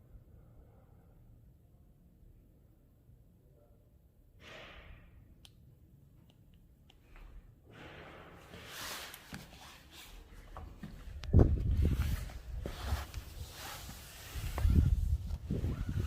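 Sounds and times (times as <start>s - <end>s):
snowstorm wind hissing: 11.4s - 16.0s
wind gust buffeting microphone: 14.3s - 16.0s.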